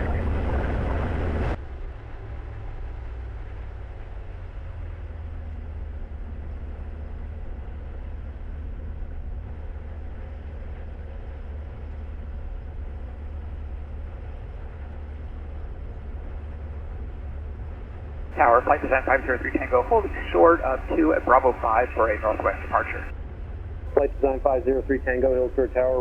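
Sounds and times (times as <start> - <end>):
propeller engine drone: 18.4 - 23.1, 23.9 - 26.0.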